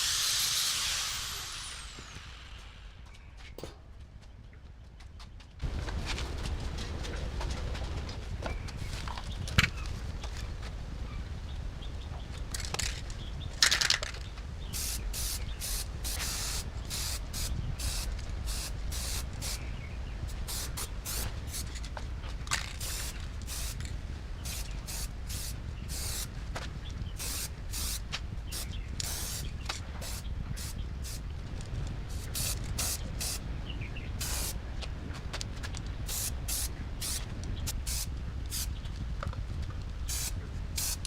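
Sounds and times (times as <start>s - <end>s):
hissing spray bursts: 0.0s - 3.0s, 14.8s - 19.6s, 20.3s - 21.7s, 22.8s - 23.8s, 24.5s - 26.3s, 27.2s - 31.2s, 34.2s - 34.6s, 36.1s - 38.7s, 40.1s - 41.0s.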